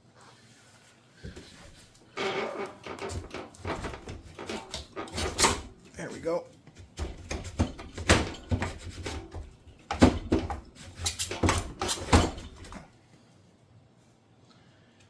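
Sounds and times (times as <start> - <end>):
knocks clicks and scraping: 2.2 - 12.9.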